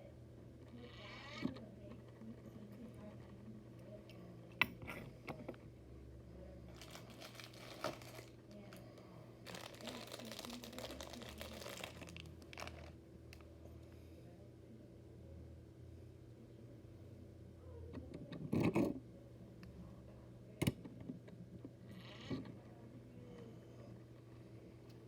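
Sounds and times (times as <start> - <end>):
plastic crinkling and rustling: 6.7 - 8.8, 9.4 - 13.0.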